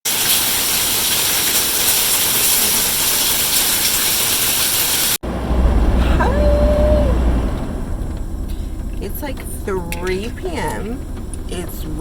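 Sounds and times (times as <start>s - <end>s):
heavy rain falling: 0.1s - 12.0s
car engine rumble inside cabin: 5.2s - 12.0s.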